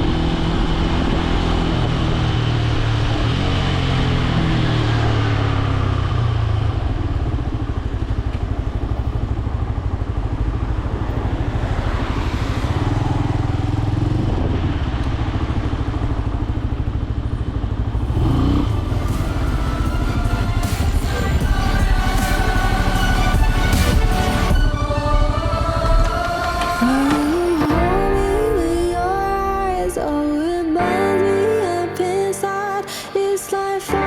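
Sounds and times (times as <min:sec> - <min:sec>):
motorcycle engine running: 0:00.0 - 0:28.0
wind rush on microphone: 0:10.8 - 0:16.6.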